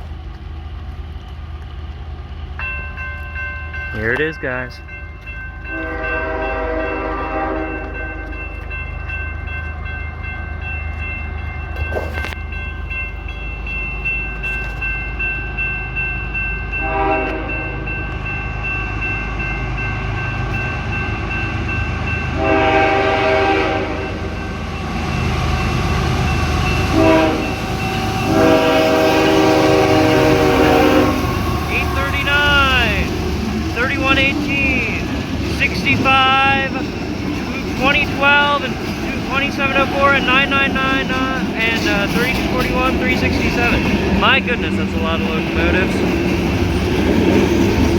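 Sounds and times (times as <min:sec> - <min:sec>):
diesel locomotive rumble: 0:00.0 - 0:47.9
crossing warning bell ringing: 0:02.4 - 0:47.9
locomotive air horn: 0:05.7 - 0:08.2, 0:16.8 - 0:17.7, 0:22.4 - 0:24.2, 0:26.9 - 0:27.6, 0:28.3 - 0:32.6.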